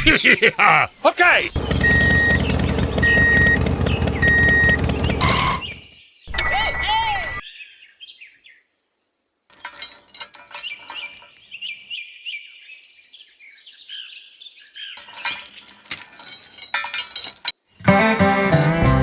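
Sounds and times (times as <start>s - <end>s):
birds chirping: 1.5s - 5.9s.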